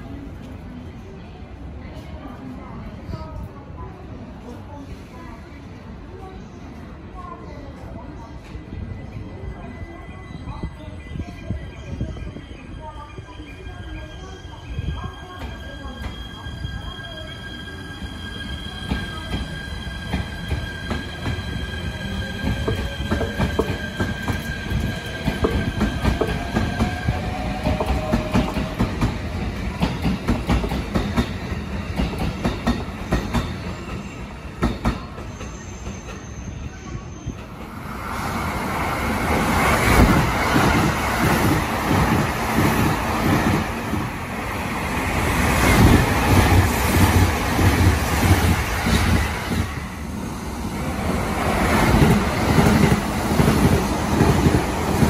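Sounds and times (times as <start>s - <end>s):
train rushing rumble: 14.8s - 36.2s, 37.0s - 55.0s.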